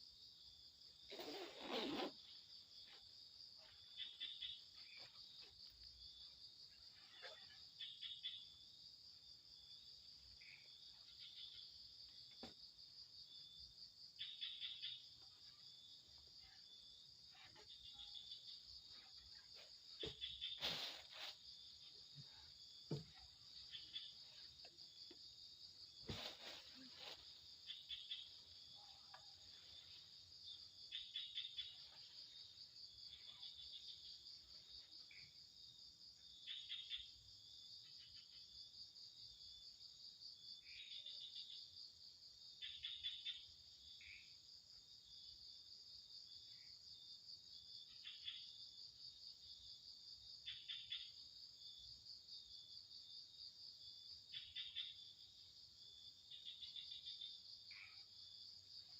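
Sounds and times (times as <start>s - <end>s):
crickets trilling: 0.0s - 58.9s
short pulsed insect chirps: 7.8s - 26.1s, 26.8s - 39.0s, 53.9s - 58.9s.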